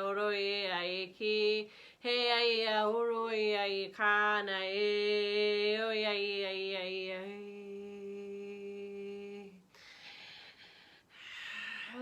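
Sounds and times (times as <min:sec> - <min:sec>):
breath: 0:01.7 - 0:02.0, 0:09.7 - 0:12.0.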